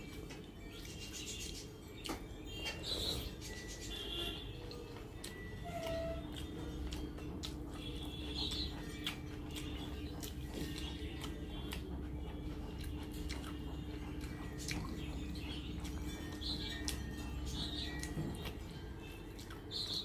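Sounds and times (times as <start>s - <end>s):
steady low hum: 0.0s - 20.0s
wet mouth clicks and chewing: 4.6s - 20.0s.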